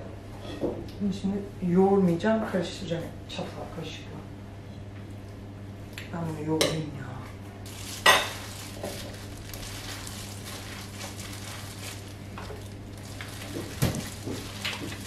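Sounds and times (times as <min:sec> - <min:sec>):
steady low hum: 0:00.0 - 0:15.0
hands kneading wet mixture: 0:07.7 - 0:15.0.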